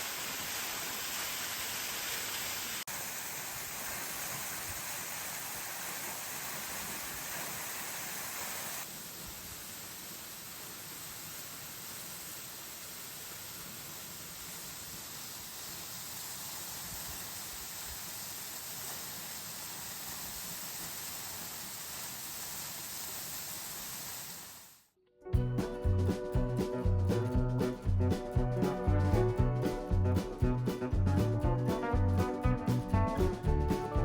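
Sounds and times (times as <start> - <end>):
steady hiss: 0.0 - 24.9
music: 25.0 - 34.0.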